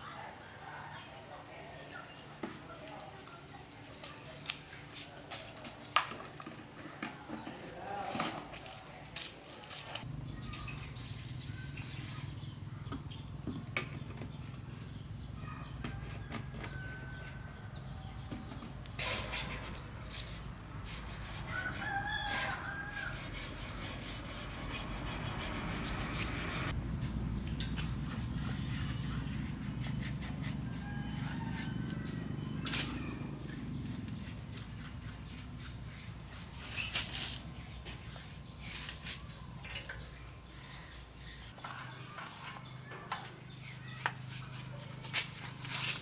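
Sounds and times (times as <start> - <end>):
rooster crowing: 15.8 - 18.2, 21.5 - 23.4, 30.6 - 32.6.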